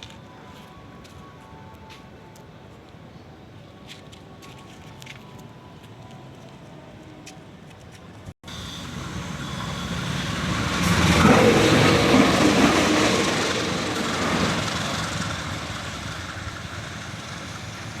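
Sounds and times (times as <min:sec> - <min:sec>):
train wheels rumbling and rattling: 0:07.8 - 0:18.0.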